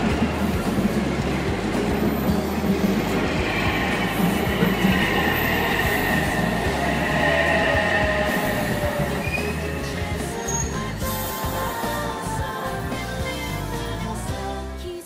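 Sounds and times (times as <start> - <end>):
high steady whine: 0.0 - 11.0
train wheels rumbling on rails: 0.0 - 13.0.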